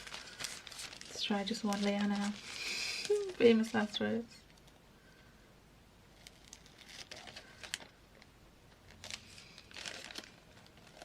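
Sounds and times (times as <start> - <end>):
scissors cutting plastic bag: 6.2 - 7.9.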